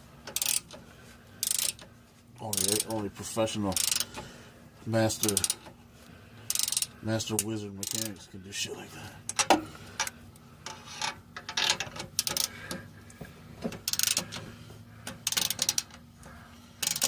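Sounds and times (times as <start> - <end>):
ratchet wrench clicking: 0.2 - 0.8, 1.4 - 1.9, 2.5 - 3.0, 3.7 - 4.2, 5.2 - 5.7, 6.5 - 8.1, 10.7 - 12.6, 13.8 - 14.4, 15.0 - 16.0, 16.8 - 17.0.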